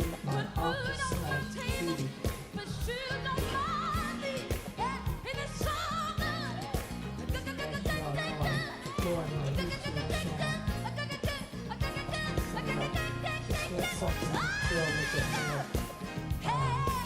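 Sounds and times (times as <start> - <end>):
bass: 0.0 - 17.0
drum beat: 0.0 - 17.0
pop song with singing: 0.0 - 17.0.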